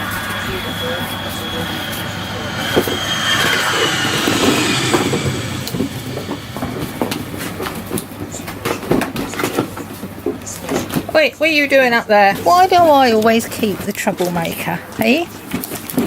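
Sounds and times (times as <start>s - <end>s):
train wheel squeal: 0.0s - 9.8s.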